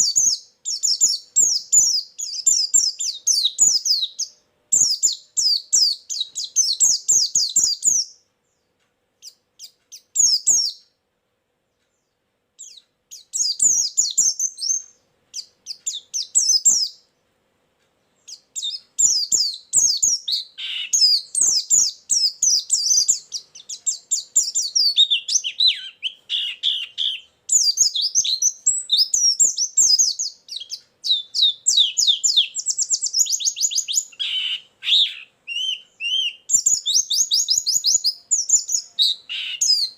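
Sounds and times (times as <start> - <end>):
bird chattering song: 0.0 - 11.0, 11.7 - 17.2, 18.0 - 39.9
fast bird trill: 15.4 - 17.0, 18.3 - 39.9.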